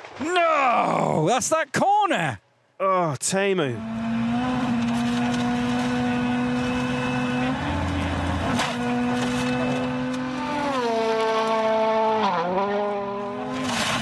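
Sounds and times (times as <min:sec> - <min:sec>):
sharp crack: 0:00.0 - 0:01.0
rally car engine revving: 0:03.6 - 0:14.0.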